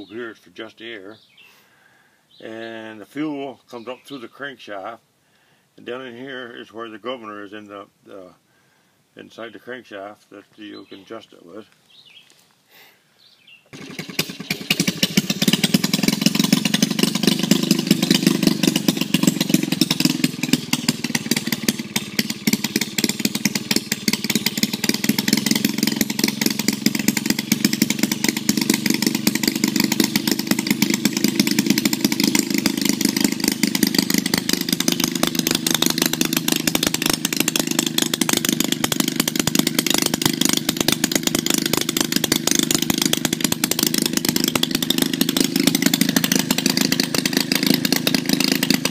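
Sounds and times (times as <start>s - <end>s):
small gasoline engine running: 13.7s - 48.9s.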